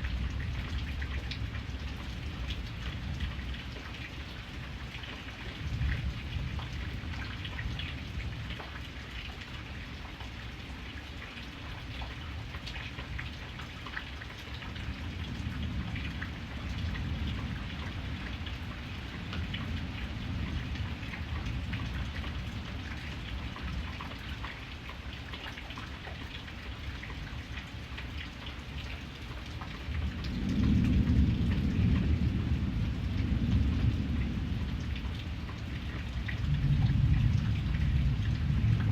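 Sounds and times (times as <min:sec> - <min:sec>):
rain pattering: 0:00.0 - 0:38.9
rolling thunder: 0:30.0 - 0:38.9.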